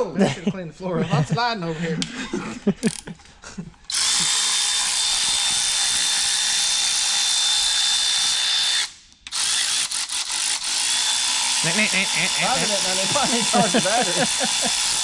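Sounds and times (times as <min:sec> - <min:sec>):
power tool motor whine: 0:03.9 - 0:15.0.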